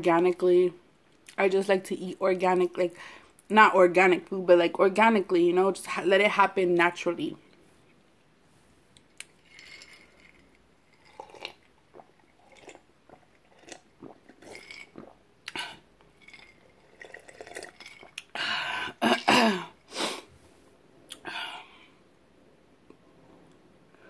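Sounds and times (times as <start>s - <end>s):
person chewing with wet mouth clicks: 9.0s - 10.3s
sipping soda: 9.2s - 18.4s.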